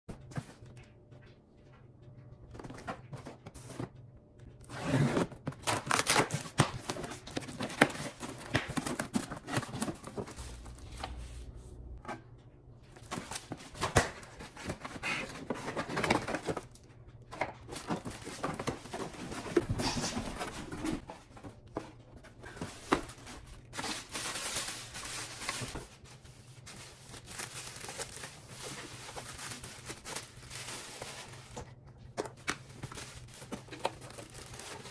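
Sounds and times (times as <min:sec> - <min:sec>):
faint low hum: 0:07.0 - 0:34.9
packaging crinkling and tearing: 0:22.8 - 0:31.7, 0:32.3 - 0:34.9.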